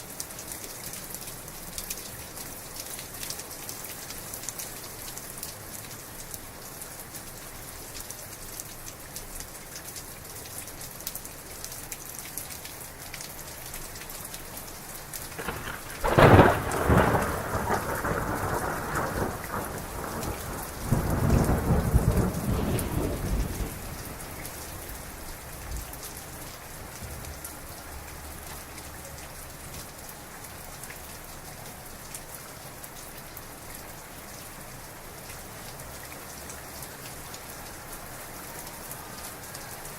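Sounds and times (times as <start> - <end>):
heavy rain: 0.0 - 39.9
thunder rumbling: 15.4 - 25.8.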